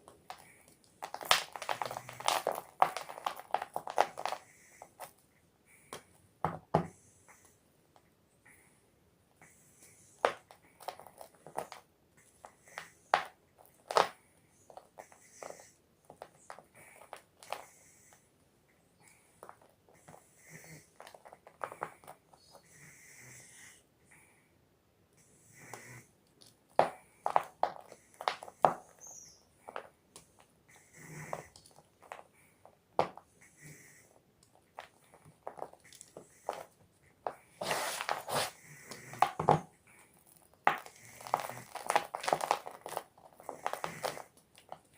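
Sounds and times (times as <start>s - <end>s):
chalk block crunching: 0.0s - 4.4s, 26.8s - 30.4s, 34.6s - 39.4s, 40.2s - 44.9s.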